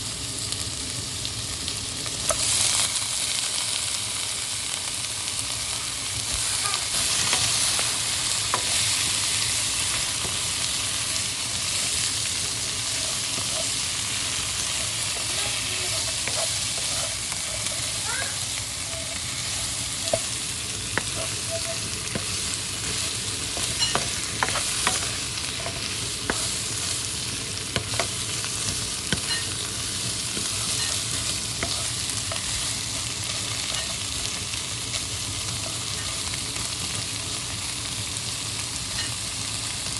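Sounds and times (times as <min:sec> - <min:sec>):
food sizzling in a hot pan: 0:00.0 - 0:39.9
utensil scraping a pan: 0:06.9 - 0:34.4.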